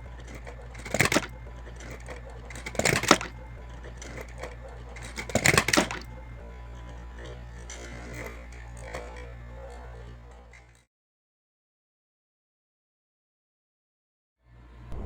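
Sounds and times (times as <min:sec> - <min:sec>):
toy cars clattering down steps: 0:00.0 - 0:10.8.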